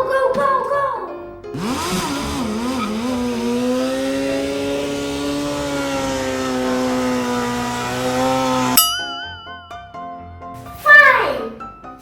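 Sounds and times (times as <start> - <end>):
motorcycle engine revving: 1.6 - 8.8.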